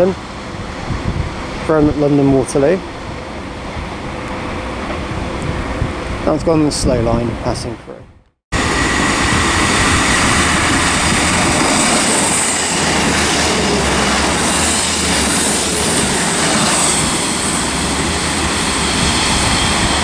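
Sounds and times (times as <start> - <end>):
diesel trains rumbling past: 0.0 - 7.6, 8.5 - 20.0
high wheel squeal: 8.6 - 20.0.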